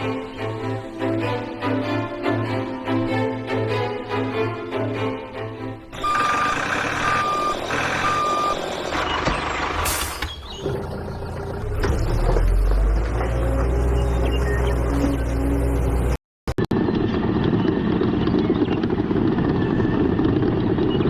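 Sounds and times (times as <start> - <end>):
diesel truck engine rumble: 5.8 - 21.0
truck reversing alarm beeping: 6.0 - 10.6.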